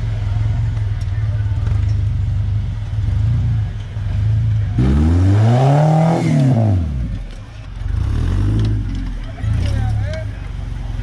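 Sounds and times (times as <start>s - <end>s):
truck engine revving hard: 3.0s - 7.2s, 7.8s - 10.0s.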